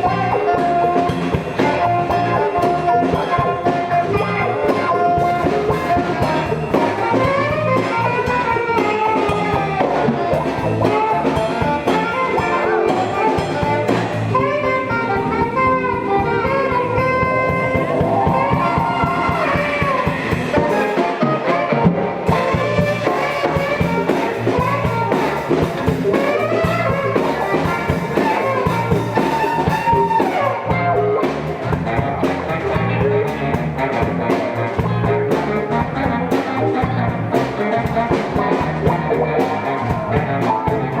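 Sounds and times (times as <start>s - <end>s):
drum kit: 0.0s - 41.0s
guitar: 0.0s - 41.0s
horns playing melody: 0.0s - 41.0s.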